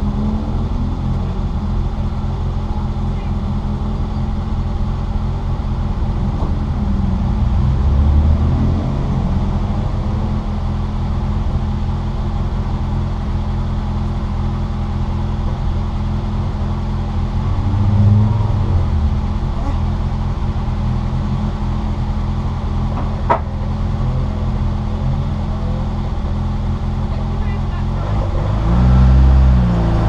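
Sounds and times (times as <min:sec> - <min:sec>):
car engine running hard: 0:00.0 - 0:30.0
road noise: 0:00.0 - 0:30.0.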